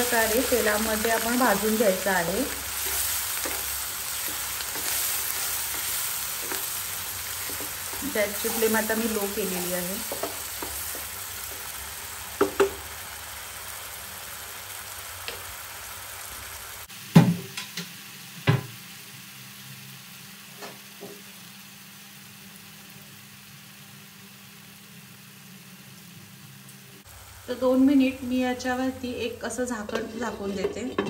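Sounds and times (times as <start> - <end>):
paste sizzling in oil: 0.0 - 16.9.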